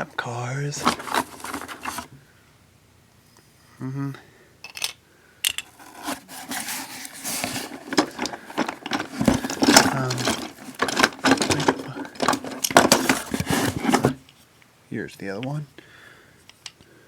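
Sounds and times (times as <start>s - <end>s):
hand rubbing and scraping: 0.8s - 2.1s, 5.6s - 14.4s
wooden toy trains clattering: 0.8s - 2.1s, 5.5s - 14.2s.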